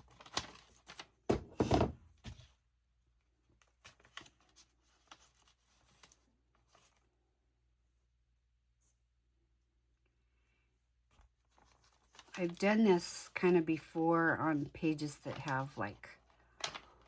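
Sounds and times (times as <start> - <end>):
paper rustling thunk: 16.6 - 17.0.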